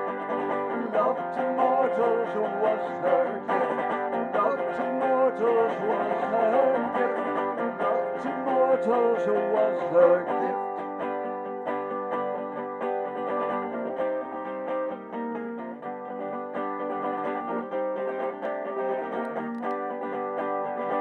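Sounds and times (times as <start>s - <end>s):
solo guitar playing: 0.0s - 21.0s.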